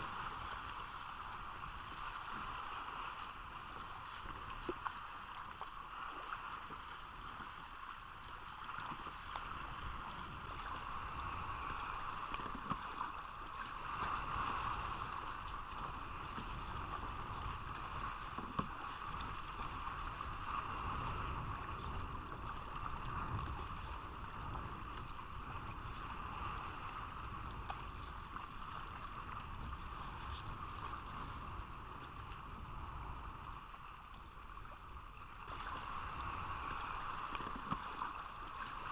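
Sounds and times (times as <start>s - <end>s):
wind: 0.0s - 38.9s
water rushing: 35.5s - 38.9s.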